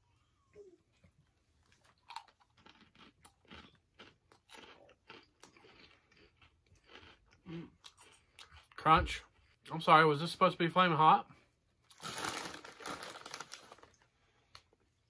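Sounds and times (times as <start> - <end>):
person chewing crunchy chips: 1.6 - 9.6, 11.9 - 14.7.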